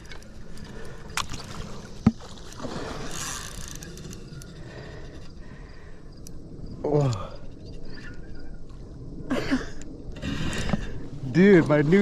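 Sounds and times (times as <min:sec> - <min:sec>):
water splashing and sloshing: 0:00.0 - 0:06.0, 0:09.6 - 0:12.0.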